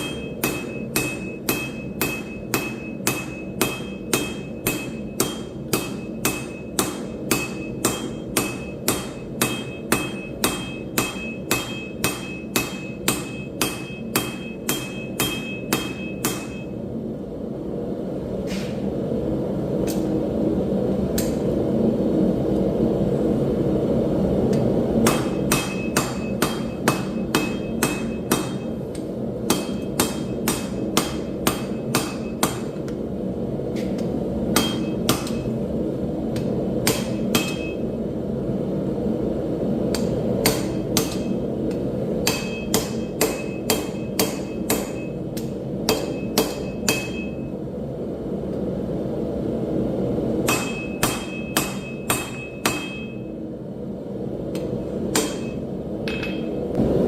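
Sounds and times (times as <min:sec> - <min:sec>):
hammer ringing on anvil: 0:00.0 - 0:16.8, 0:25.0 - 0:28.8, 0:29.5 - 0:32.7, 0:34.5 - 0:35.5, 0:36.8 - 0:37.8, 0:42.2 - 0:45.2, 0:45.9 - 0:47.5, 0:50.4 - 0:53.3, 0:55.1 - 0:56.6.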